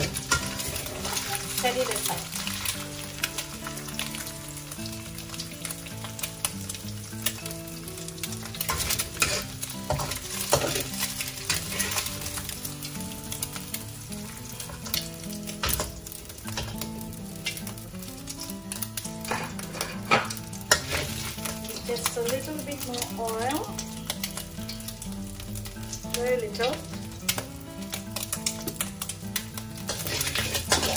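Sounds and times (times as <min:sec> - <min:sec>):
metal spatula scraping a pan: 0:00.0 - 0:02.8, 0:08.6 - 0:12.5, 0:19.2 - 0:21.6, 0:29.8 - 0:30.9
oil sizzling in a wok: 0:00.0 - 0:30.9
quiet background music: 0:00.0 - 0:30.9.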